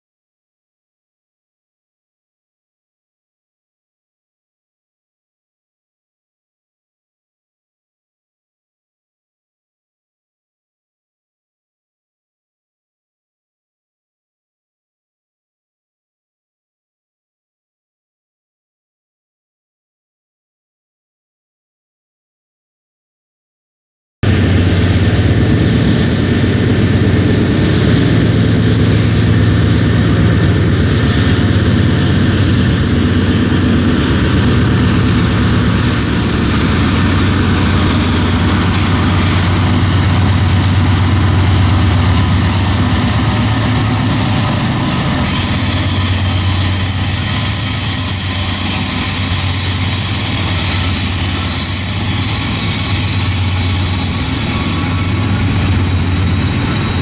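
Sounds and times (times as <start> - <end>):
diesel locomotive engines humming: 24.2 - 57.0
steel wheels on rail: 24.3 - 57.0.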